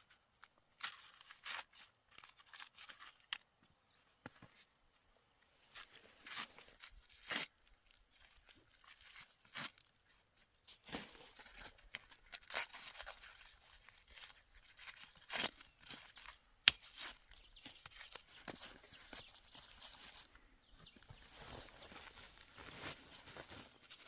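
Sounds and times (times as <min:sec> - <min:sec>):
dry plants rustling and tearing: 0:00.4 - 0:03.5, 0:05.7 - 0:24.0.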